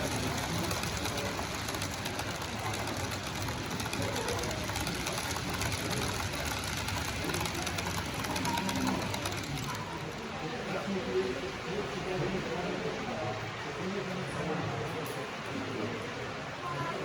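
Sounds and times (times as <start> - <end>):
model train rattling on track: 0.0 - 10.8.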